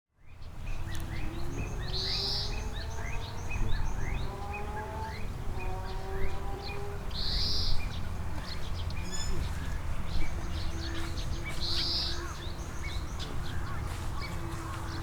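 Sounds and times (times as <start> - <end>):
birds chirping: 6.7 - 15.0.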